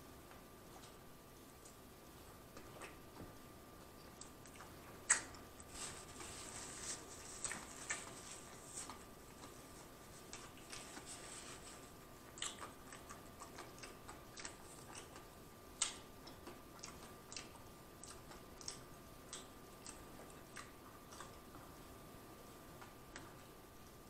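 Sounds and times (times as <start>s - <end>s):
wet chewing and lip smacks: 2.5s - 6.2s, 7.4s - 11.2s, 11.8s - 21.8s.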